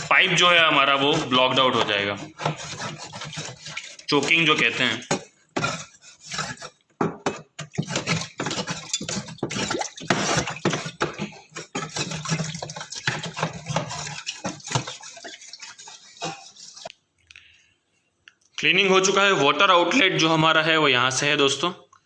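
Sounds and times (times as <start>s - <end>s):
metal spatula scraping plastic tank: 0.0s - 16.9s
water sloshing: 0.4s - 6.8s, 7.4s - 16.9s.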